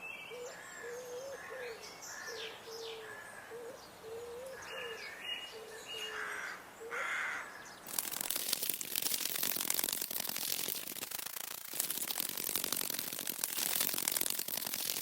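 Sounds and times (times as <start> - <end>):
rapid clicking rattle: 7.9 - 15.0.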